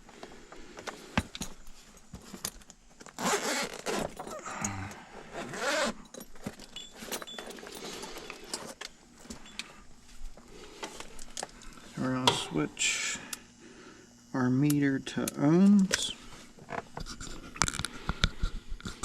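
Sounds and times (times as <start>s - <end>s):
zipper-like rasp: 3.2s - 4.4s, 5.3s - 6.0s.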